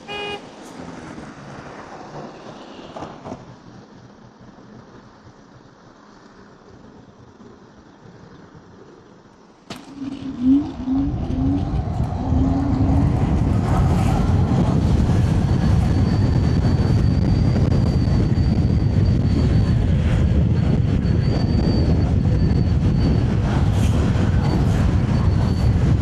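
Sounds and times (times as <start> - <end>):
short low rising tones: 9.7 - 20.0
wind buffeting microphone: 9.8 - 26.0.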